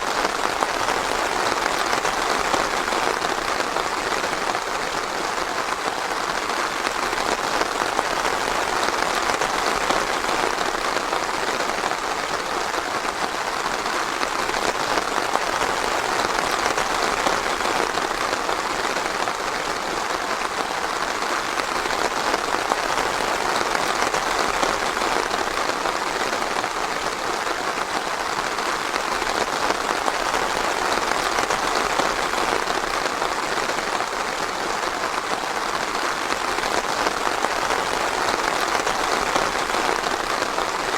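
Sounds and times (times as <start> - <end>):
rain pattering on foliage: 0.0 - 40.9.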